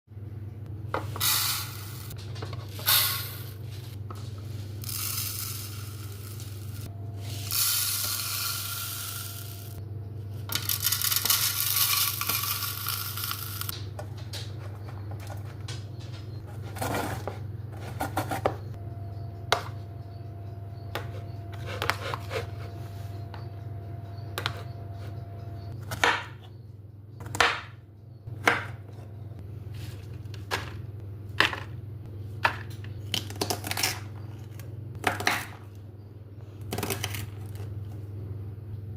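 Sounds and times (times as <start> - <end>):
steady low hum: 0.1 - 38.9.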